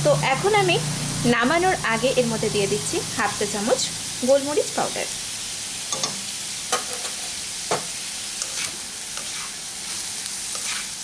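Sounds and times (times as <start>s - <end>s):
potatoes sizzling in oil: 0.0s - 11.0s
spatula scraping and knocking pan: 5.9s - 11.0s.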